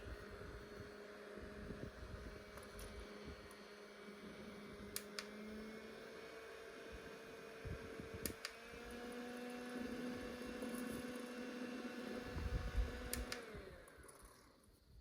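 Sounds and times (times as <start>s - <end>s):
small electric motor humming: 0.0s - 15.0s
sharp clicks: 8.2s - 8.6s, 13.1s - 13.5s.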